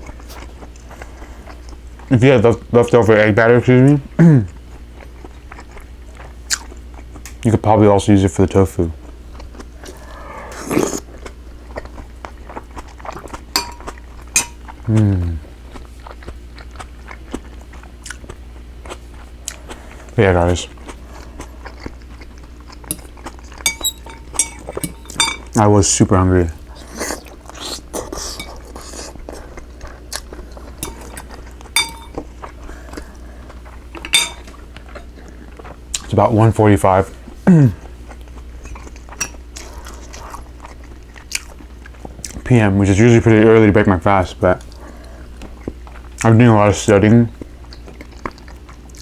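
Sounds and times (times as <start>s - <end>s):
quiet chewing: 0.0s - 2.1s, 4.4s - 7.4s, 9.0s - 25.6s, 26.5s - 36.1s, 37.1s - 42.5s, 44.5s - 46.4s, 47.3s - 49.0s
cutlery clinking on a dish: 13.6s - 14.7s, 22.9s - 25.6s, 30.8s - 32.2s, 34.0s - 34.6s
person humming mm: 14.9s - 15.5s.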